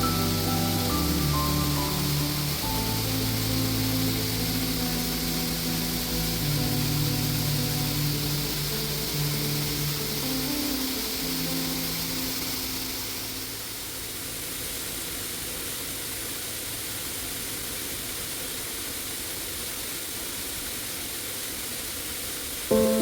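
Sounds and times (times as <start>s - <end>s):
background music: 0.0s - 13.6s, 22.7s - 23.0s
waterfall roaring: 0.0s - 23.0s.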